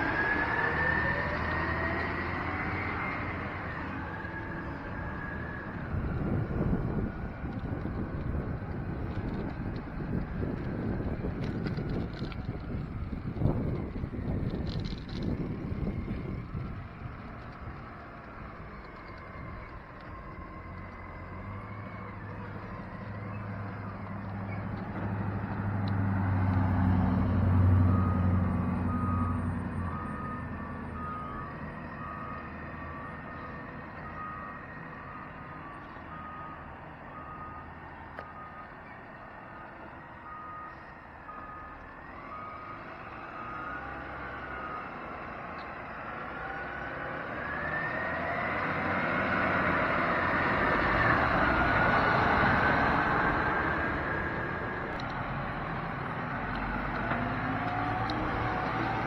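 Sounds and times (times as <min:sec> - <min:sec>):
truck engine rumbling: 0:00.0 - 0:59.0
truck reversing alarm beeping: 0:15.2 - 0:59.0.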